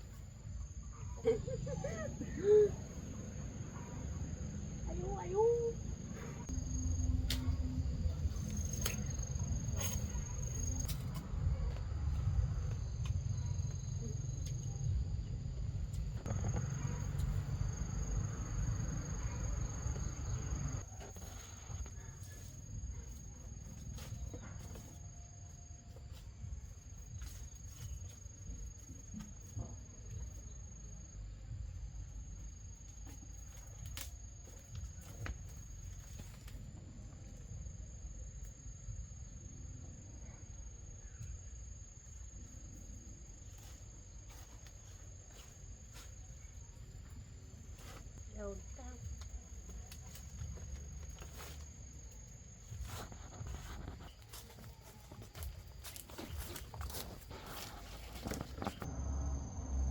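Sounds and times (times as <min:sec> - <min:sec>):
insects trilling: 0:00.0 - 0:59.9
low rumble: 0:05.8 - 0:20.8.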